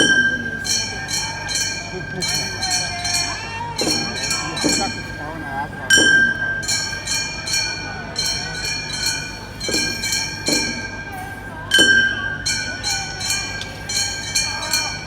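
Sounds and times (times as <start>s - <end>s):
faint wavering flute or voices: 0.0s - 8.8s
brass hand gongs ringing: 0.0s - 15.0s.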